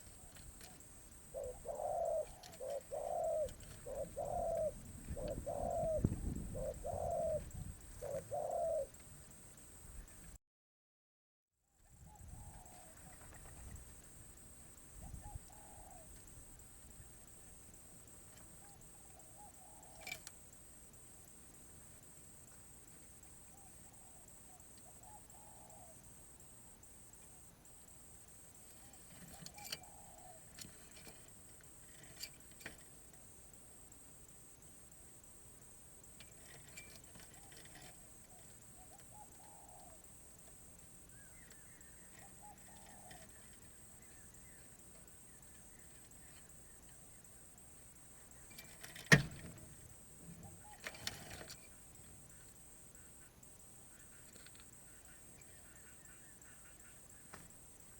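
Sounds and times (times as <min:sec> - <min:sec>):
dove cooing: 0:00.0 - 0:09.3, 0:12.0 - 0:20.4, 0:23.1 - 0:26.5, 0:28.6 - 0:31.3, 0:36.2 - 0:47.4, 0:50.2 - 0:57.3.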